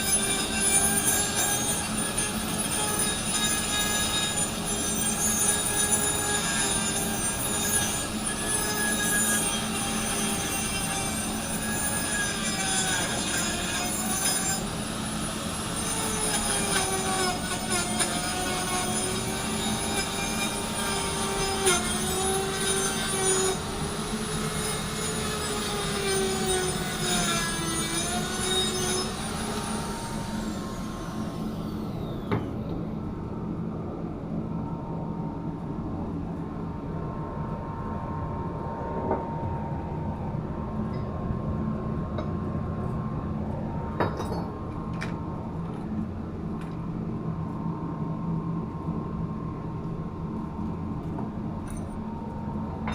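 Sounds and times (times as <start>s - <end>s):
power tool whining: 0.0s - 32.7s
machinery hum with high tone: 0.0s - 52.9s.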